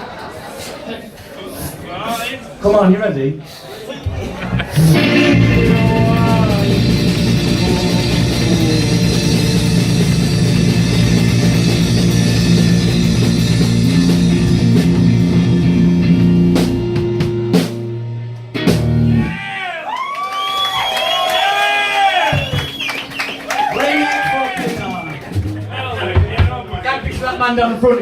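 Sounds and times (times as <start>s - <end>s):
bass guitar: 4.4s - 19.4s, 24.6s - 26.6s
drum kit: 4.5s - 19.4s, 22.2s - 27.5s
distorted electric guitar chords: 4.7s - 19.3s.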